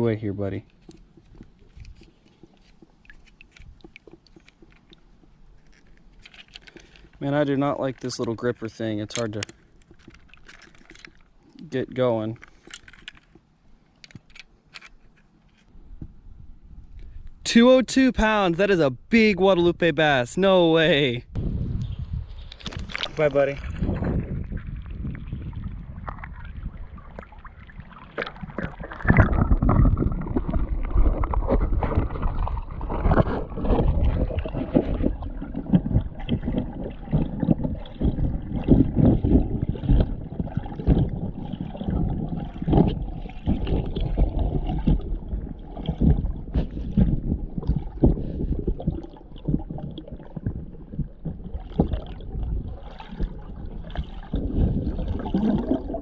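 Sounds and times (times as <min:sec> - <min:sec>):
creek water splashing: 0:22.5 - 0:56.0.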